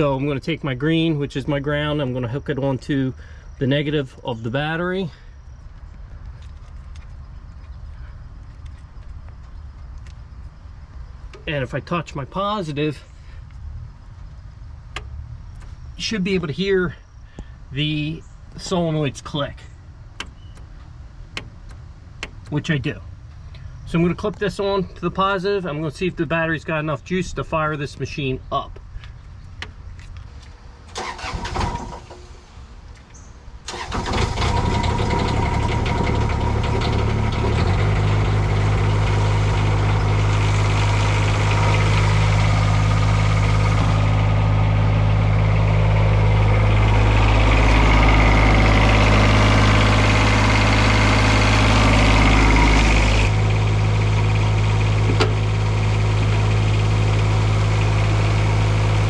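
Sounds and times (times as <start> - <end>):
diesel engine idling: 0.0 - 33.0, 33.6 - 59.0
engine starter cranking: 30.9 - 32.4, 33.6 - 44.2.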